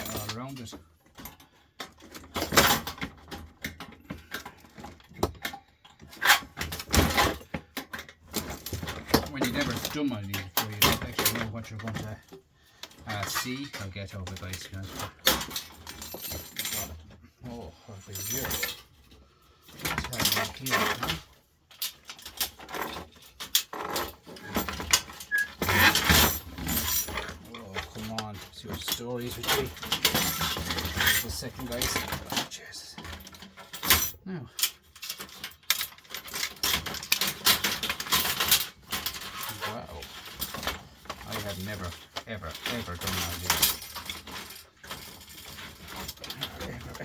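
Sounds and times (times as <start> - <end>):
clicks and clinks of lamp parts: 19.7 - 47.0.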